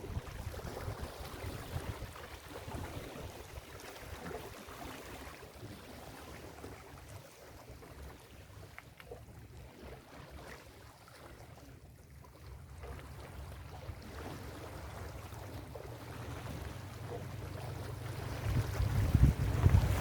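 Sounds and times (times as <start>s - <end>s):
ocean waves washing: 13.8s - 20.0s.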